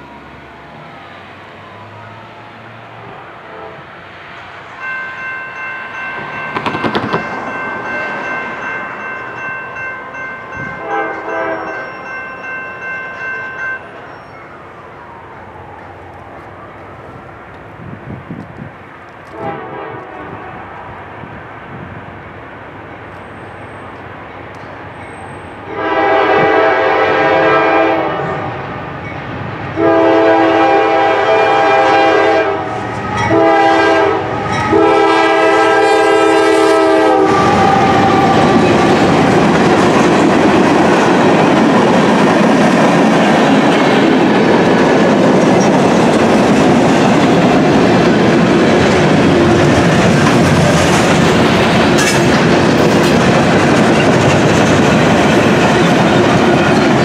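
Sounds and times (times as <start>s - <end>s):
train wheels on rail: 0.0s - 57.0s
locomotive horn blasts: 3.4s - 3.9s, 10.6s - 12.0s, 19.3s - 20.7s, 25.7s - 28.6s, 29.8s - 38.7s.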